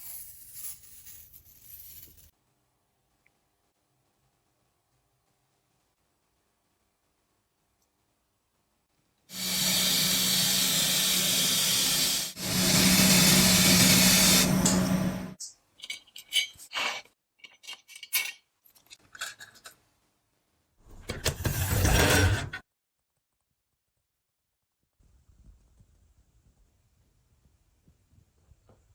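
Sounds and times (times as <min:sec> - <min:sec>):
electric power tool running: 0:09.3 - 0:15.4.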